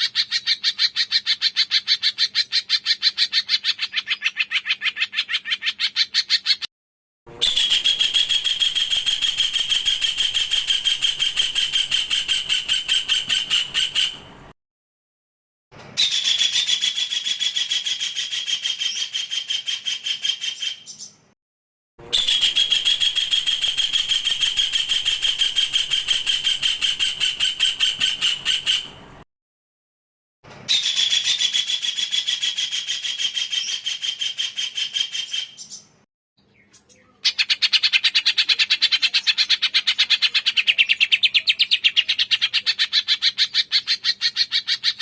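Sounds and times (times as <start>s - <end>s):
songbird harsh rapid song: 7.5s - 14.4s, 22.2s - 29.0s.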